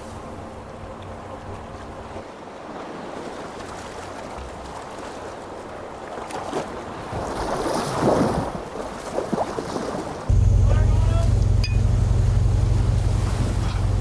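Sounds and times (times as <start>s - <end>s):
water splashing: 0.7s - 14.0s
water washing: 7.9s - 14.0s.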